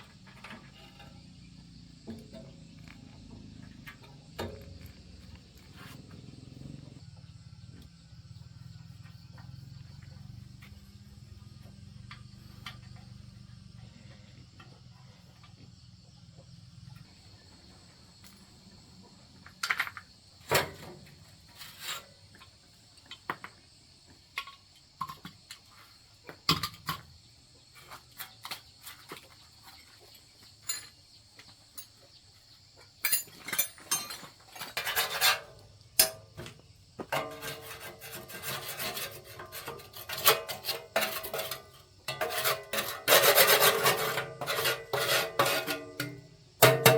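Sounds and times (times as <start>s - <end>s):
crickets chirring: 0.0s - 46.9s
scraping strokes on metal: 34.5s - 36.1s, 37.1s - 46.9s.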